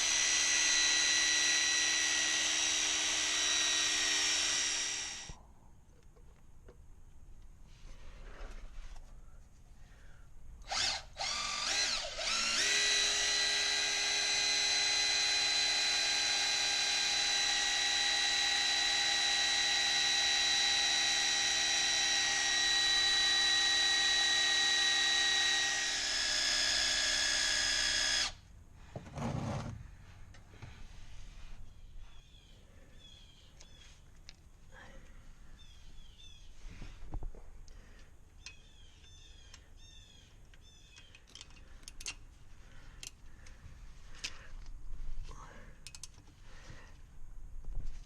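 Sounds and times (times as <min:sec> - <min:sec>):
power drill motor whining: 0:00.0 - 0:05.4, 0:10.6 - 0:28.4.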